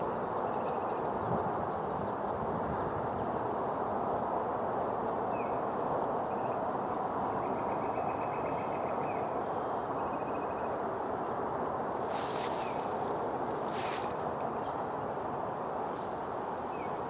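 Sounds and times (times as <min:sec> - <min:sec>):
rustling hiss: 0:11.7 - 0:14.6
steady rushing noise: 0:11.8 - 0:14.6.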